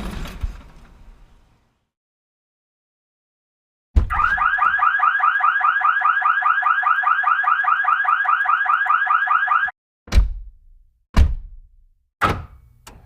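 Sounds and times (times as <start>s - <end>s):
pulsing electronic alarm: 4.1s - 9.8s.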